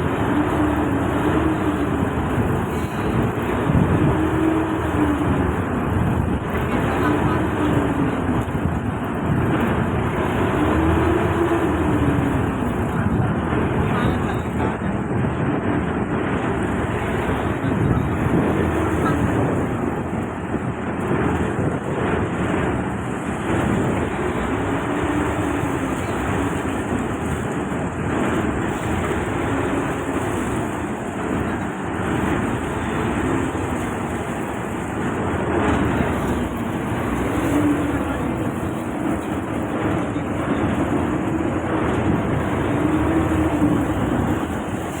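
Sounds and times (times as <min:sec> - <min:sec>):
boat engine running: 0:00.0 - 0:45.0
rushing water: 0:00.0 - 0:45.0
wind: 0:00.0 - 0:45.0.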